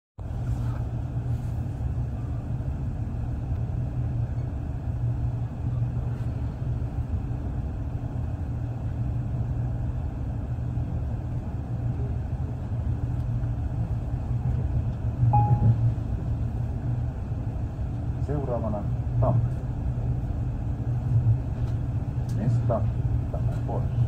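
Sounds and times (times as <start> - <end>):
train rumbling along track: 0.2 - 24.0.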